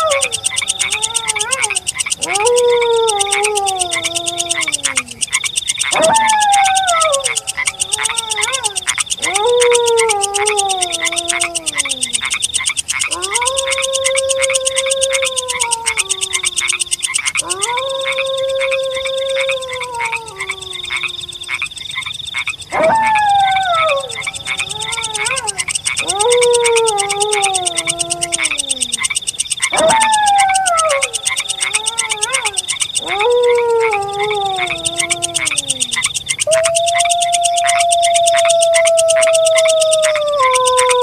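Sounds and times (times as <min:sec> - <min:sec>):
wolf howling: 0:00.0 - 0:21.7, 0:22.7 - 0:41.0
night chorus of chirping: 0:00.0 - 0:41.0.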